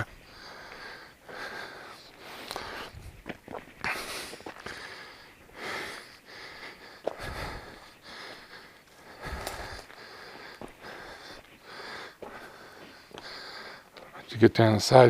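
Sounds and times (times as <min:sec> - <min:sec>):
man breathing heavily: 0:00.0 - 0:14.4.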